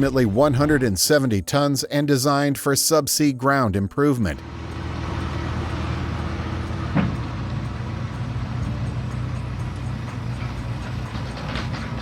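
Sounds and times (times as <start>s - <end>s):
diesel engine droning: 4.3s - 12.0s.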